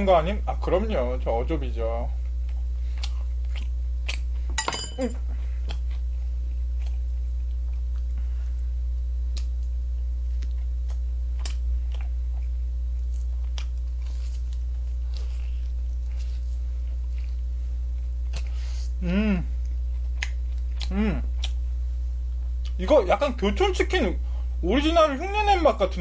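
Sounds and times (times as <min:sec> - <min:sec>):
steady low hum: 0:00.0 - 0:26.0
chewing crispy fried chicken: 0:02.1 - 0:04.5, 0:05.2 - 0:22.9.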